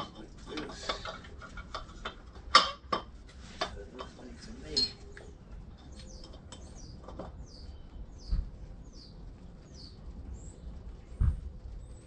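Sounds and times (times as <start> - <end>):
metal clinks: 4.7 - 5.0
bird chirping: 4.7 - 12.0.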